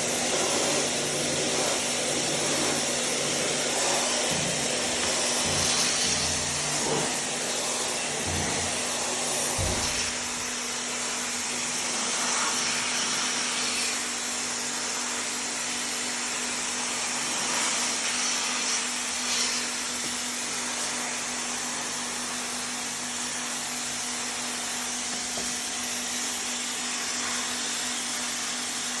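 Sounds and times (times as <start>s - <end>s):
motor-driven hiss with low hum: 0.0s - 29.0s.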